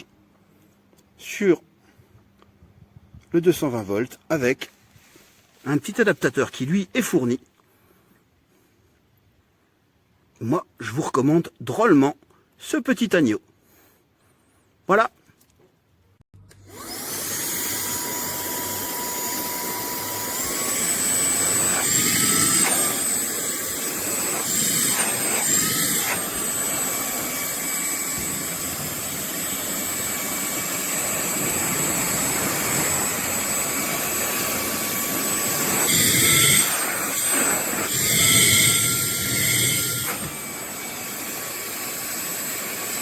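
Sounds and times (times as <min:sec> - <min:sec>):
handheld vacuum cleaner whine: 0:16.5 - 0:43.0.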